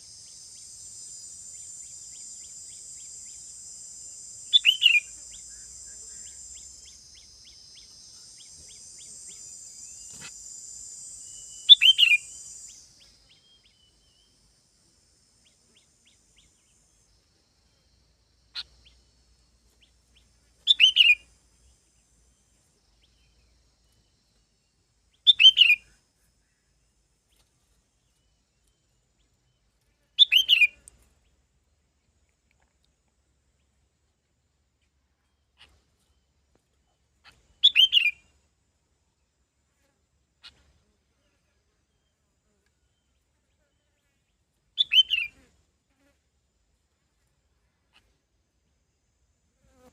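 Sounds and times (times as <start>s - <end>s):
songbird whistled call: 0.0s - 3.6s, 4.4s - 10.3s, 11.1s - 14.3s, 20.7s - 21.3s, 25.2s - 25.9s, 30.2s - 30.8s, 37.6s - 38.2s, 44.8s - 45.4s.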